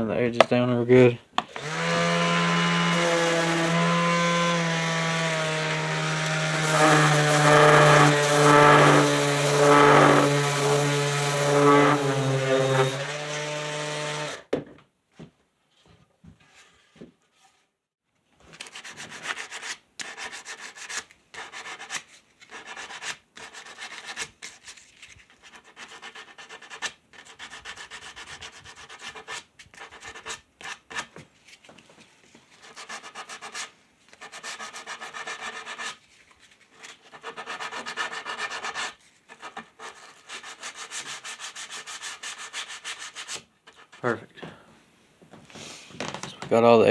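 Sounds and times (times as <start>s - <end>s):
sandpaper rubbing wood: 1.0s - 14.3s, 32.6s - 36.0s, 37.1s - 43.9s
power tool motor: 1.4s - 14.4s.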